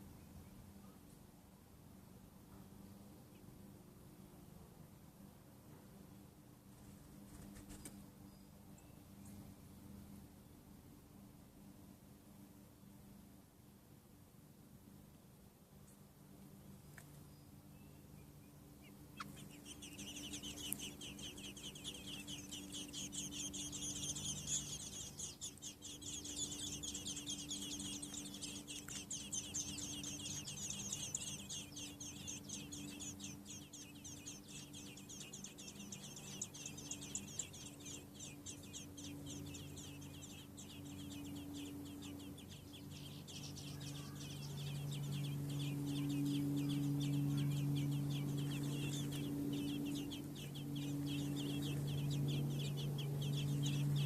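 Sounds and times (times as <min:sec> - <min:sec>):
nestling birds peeping: 0:05.7 - 0:10.3, 0:15.8 - 0:54.0
low hum: 0:14.7 - 0:54.0.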